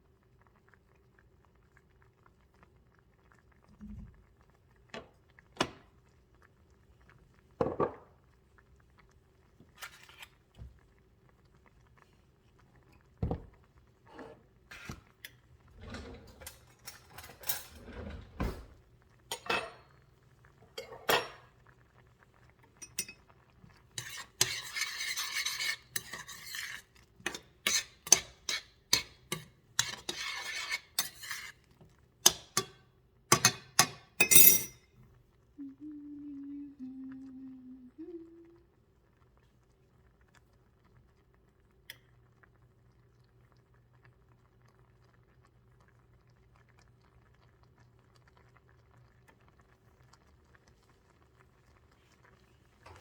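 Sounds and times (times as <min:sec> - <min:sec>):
utensils clinking against dishes: 0:15.8 - 0:18.3, 0:32.3 - 0:34.8
utensil scraping: 0:24.0 - 0:31.6.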